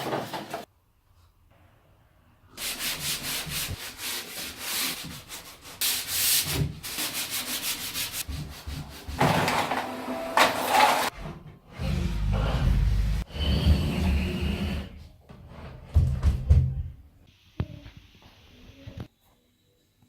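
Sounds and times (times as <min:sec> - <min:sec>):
rubbing strokes: 0:02.6 - 0:09.2.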